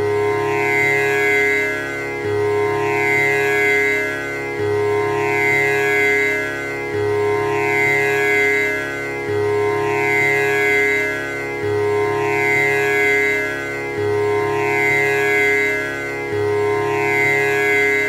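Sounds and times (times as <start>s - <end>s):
tanpura drone: 0.0s - 18.0s.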